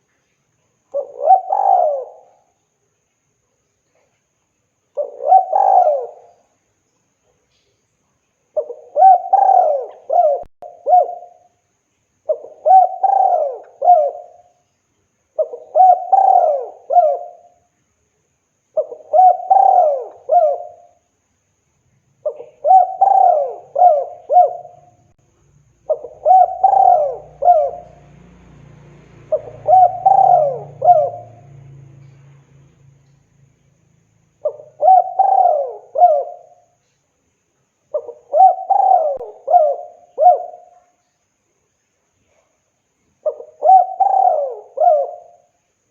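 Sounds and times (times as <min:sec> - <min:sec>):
faint low hum: 0:00.0 - 0:45.9
dove cooing: 0:01.0 - 0:02.5, 0:05.0 - 0:06.4, 0:08.6 - 0:11.5, 0:12.3 - 0:14.5, 0:15.4 - 0:17.5, 0:18.8 - 0:21.0, 0:22.2 - 0:25.1, 0:25.8 - 0:32.3, 0:34.4 - 0:36.8, 0:37.9 - 0:40.9, 0:43.2 - 0:45.5.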